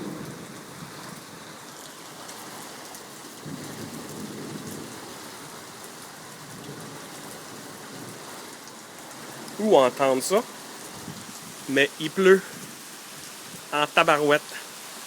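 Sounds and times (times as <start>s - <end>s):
distant thunder rumble: 0.0s - 1.5s, 3.4s - 8.2s
heavy rain pouring: 0.0s - 15.0s.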